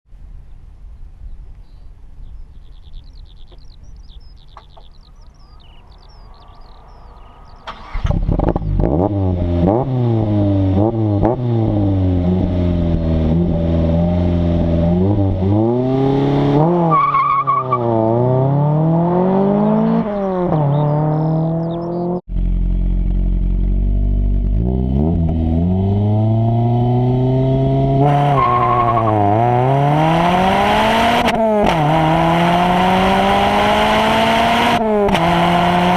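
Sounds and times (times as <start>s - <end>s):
birds chirping: 0.4s - 9.1s, 18.8s - 22.2s
race car engine accelerating: 5.6s - 35.9s.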